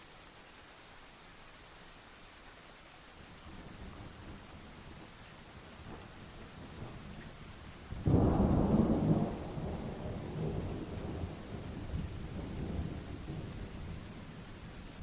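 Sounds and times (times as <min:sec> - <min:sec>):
rain hiss: 0:00.0 - 0:15.0
thunderclap rumbling: 0:08.0 - 0:13.4.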